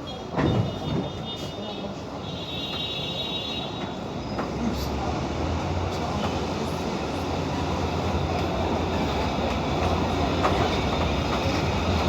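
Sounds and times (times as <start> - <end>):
train running on track: 0.0 - 12.0.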